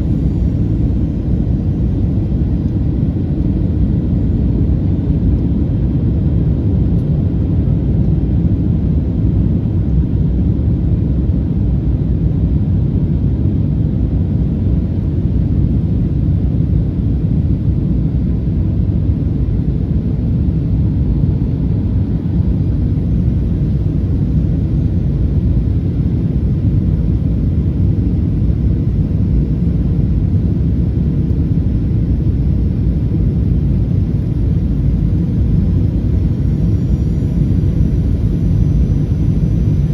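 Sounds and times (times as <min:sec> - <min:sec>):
airplane cabin rumble: 0:00.0 - 0:39.9.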